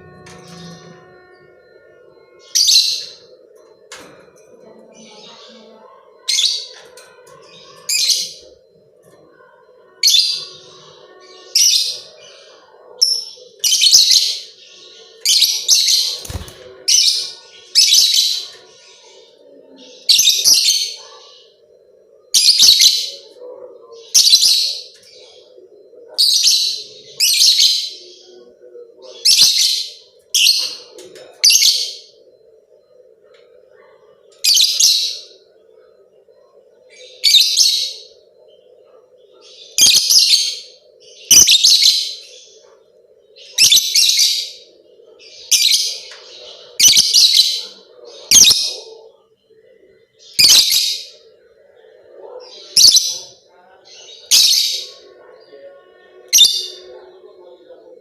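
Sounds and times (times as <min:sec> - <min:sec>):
faint steady hum: 0:32.0 - 0:37.3, 0:37.9 - 0:39.8, 0:42.2 - 0:43.6, 0:44.4 - 0:46.8.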